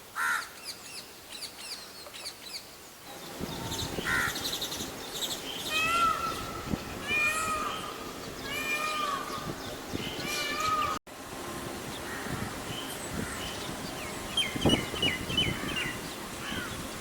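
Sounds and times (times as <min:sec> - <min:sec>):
loud arching animal calls: 0:05.6 - 0:09.5.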